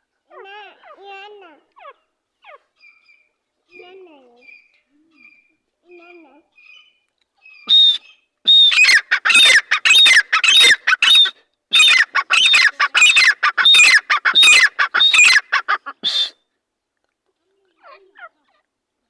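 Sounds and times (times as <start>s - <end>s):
francolin calling: 7.7s - 16.4s.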